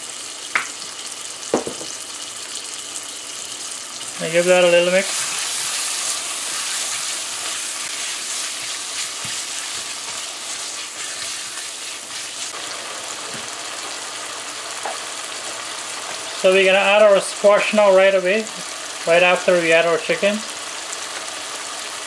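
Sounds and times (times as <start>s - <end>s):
chicken sizzling in hot oil: 0.0s - 22.0s
spatula stirring in pan: 4.0s - 14.0s.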